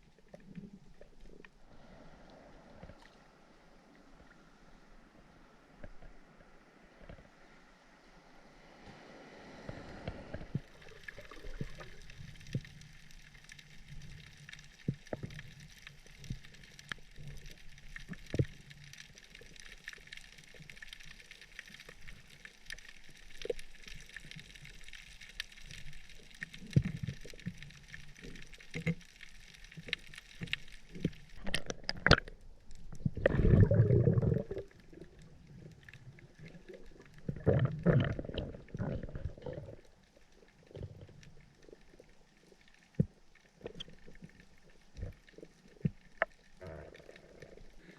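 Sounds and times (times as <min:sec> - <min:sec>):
small clicks and crackles: 0:00.0 - 0:01.6, 0:02.2 - 0:03.3, 0:05.7 - 0:07.5, 0:09.7 - 0:47.9
underwater hiss: 0:08.4 - 0:13.0.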